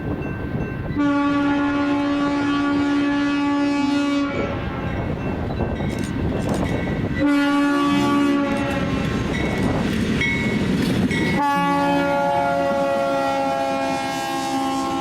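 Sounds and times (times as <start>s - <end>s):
rumble of passing train: 0.0s - 15.0s
locomotive horn blasts: 1.0s - 5.0s, 7.2s - 9.2s, 11.4s - 15.0s.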